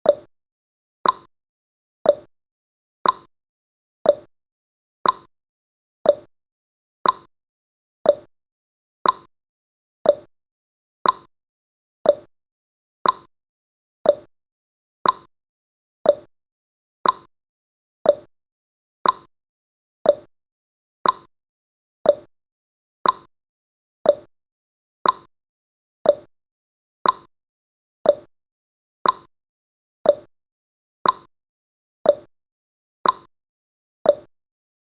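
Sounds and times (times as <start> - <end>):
clock tick-tock: 0.0 - 0.3, 1.0 - 1.3, 2.0 - 2.3, 3.0 - 3.3, 4.0 - 4.3, 5.0 - 5.3, 6.0 - 6.3, 7.0 - 7.3, 8.0 - 8.3, 9.0 - 9.3, 10.0 - 10.3, 11.0 - 11.3, 12.0 - 12.3, 13.0 - 13.3, 14.0 - 14.3, 15.0 - 15.3, 16.0 - 16.3, 17.0 - 17.3, 18.0 - 18.3, 19.0 - 19.3, 20.0 - 20.3, 21.0 - 21.3, 22.0 - 22.3, 23.0 - 23.3, 24.0 - 24.3, 25.0 - 25.3, 26.0 - 26.3, 27.0 - 27.3, 28.0 - 28.3, 29.0 - 29.3, 30.0 - 30.3, 31.0 - 31.3, 32.0 - 32.3, 33.0 - 33.3, 34.0 - 34.3.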